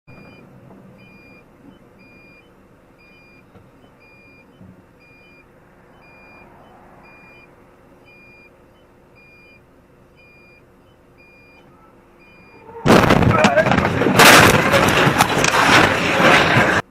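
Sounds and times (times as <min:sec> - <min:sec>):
electronic warning beeps: 0:00.1 - 0:12.8
truck engine rumbling: 0:00.1 - 0:16.9.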